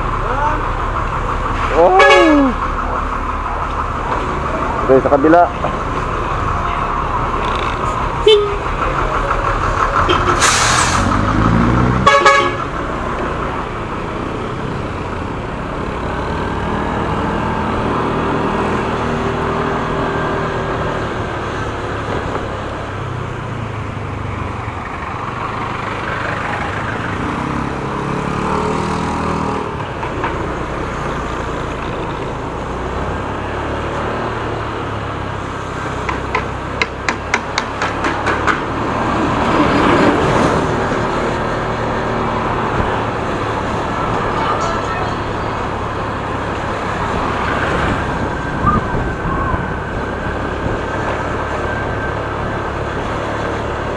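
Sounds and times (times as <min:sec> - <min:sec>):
road and traffic noise: 0:00.0 - 0:53.9
horn honk: 0:01.8 - 0:02.6, 0:08.2 - 0:08.7, 0:11.9 - 0:12.7, 0:44.3 - 0:45.7.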